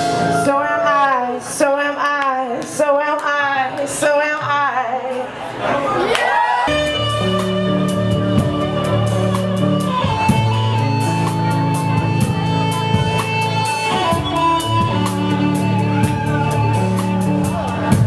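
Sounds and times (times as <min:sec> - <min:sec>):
rock band playing: 0:00.0 - 0:00.8, 0:06.7 - 0:18.0.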